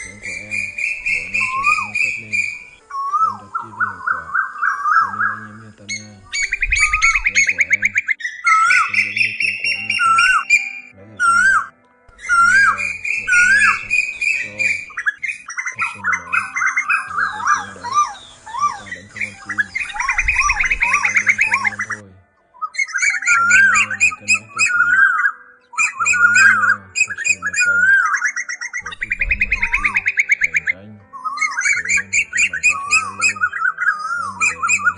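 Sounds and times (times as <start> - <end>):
koel calls: 0.0 - 34.9.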